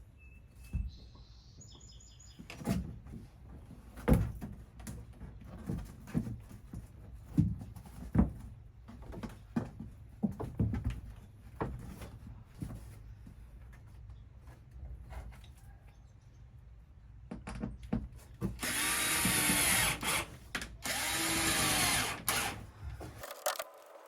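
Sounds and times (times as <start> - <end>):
plywood panel knocks and bumps: 4.0 - 12.8.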